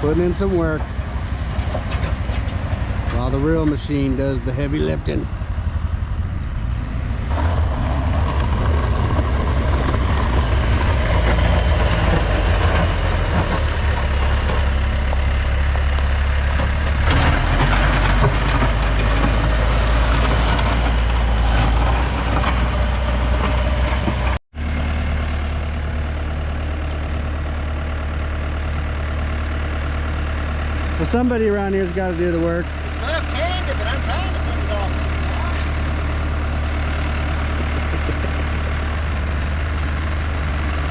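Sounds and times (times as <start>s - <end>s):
heavy equipment engine running: 0.0s - 40.9s.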